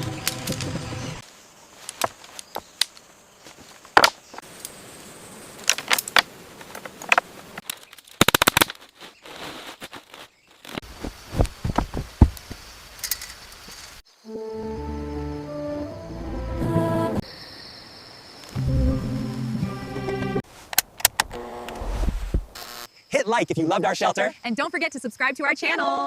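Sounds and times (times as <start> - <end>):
wood knocks and snaps: 3.9 - 4.4.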